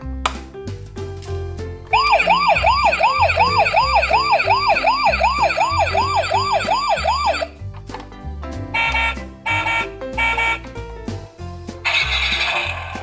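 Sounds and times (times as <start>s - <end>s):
background music: 0.2s - 13.0s
emergency siren yelping: 2.0s - 7.6s.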